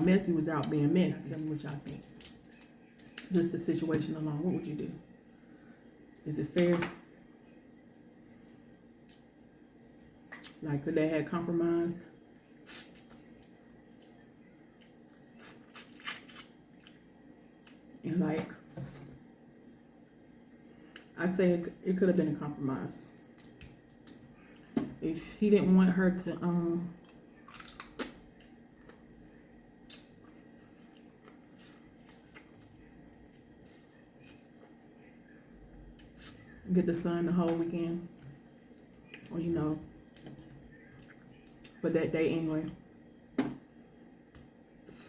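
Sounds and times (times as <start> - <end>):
wet mouth eating sounds: 12.5 - 17.0, 29.8 - 35.0.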